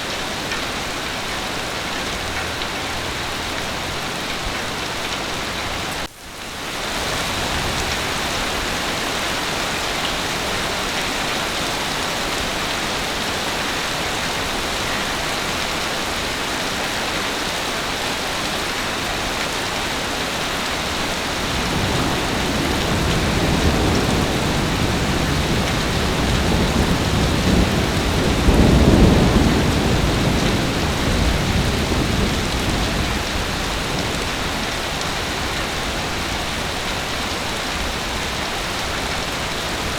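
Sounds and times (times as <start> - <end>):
heavy rain: 0.0 - 39.9
low roll of thunder: 21.3 - 35.1.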